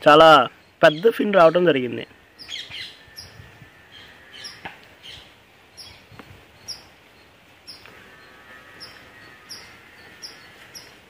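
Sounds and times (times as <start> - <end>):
faint outdoor background noise: 0.0 - 11.0
small bird chirping: 2.4 - 11.0.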